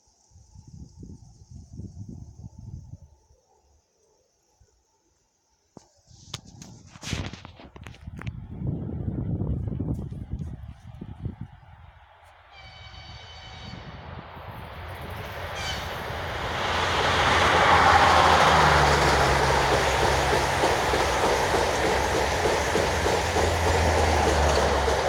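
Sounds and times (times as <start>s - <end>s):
train running noise: 12.5s - 25.0s
wheel clatter over rail joints: 17.6s - 25.0s.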